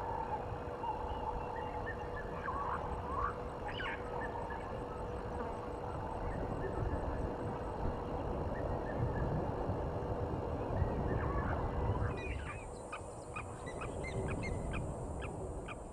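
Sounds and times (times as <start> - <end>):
low uneven rumble: 0.0 - 15.7
bird calls: 0.8 - 5.2, 11.1 - 15.9.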